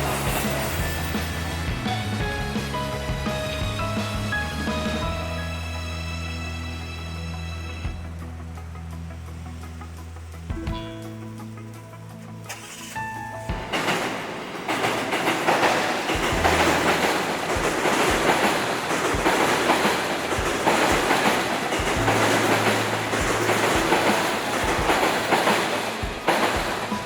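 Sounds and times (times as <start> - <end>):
train wheels rushing on rail: 0.0 - 6.0, 12.5 - 27.0
wheels clacking over rail joints: 12.2 - 27.0.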